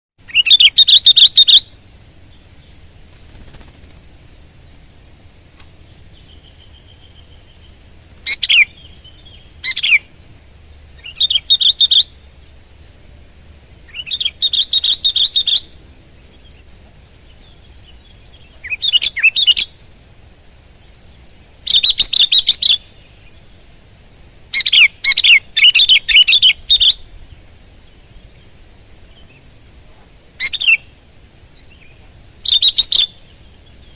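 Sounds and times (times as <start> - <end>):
bulbul warbling song: 0.2 - 4.8, 5.8 - 12.8, 13.8 - 19.9, 20.7 - 23.7, 24.3 - 33.9
faint low hum: 0.2 - 33.9.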